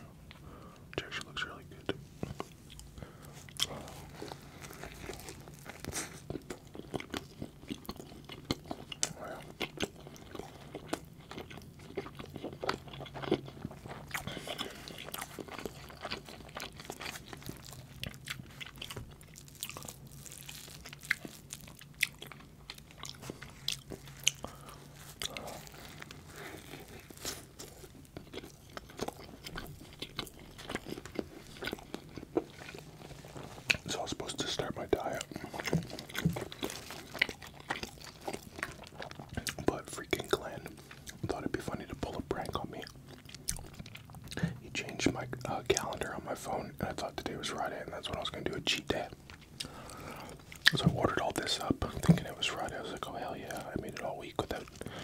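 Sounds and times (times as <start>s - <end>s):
person chewing sandwich: 0.0s - 55.0s.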